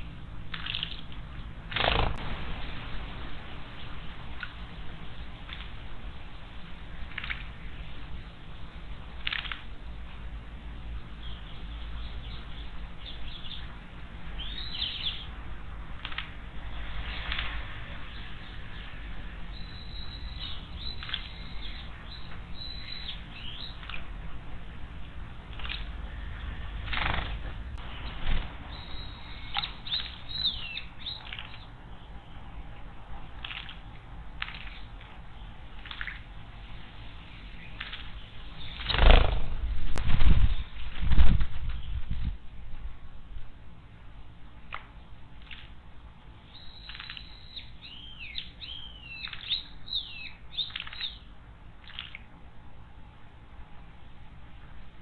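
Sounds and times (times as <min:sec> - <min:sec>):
bird chirping: 0:00.5 - 0:39.7, 0:46.4 - 0:51.3
bird wing flapping: 0:01.7 - 0:02.2, 0:25.5 - 0:28.6, 0:38.7 - 0:41.8.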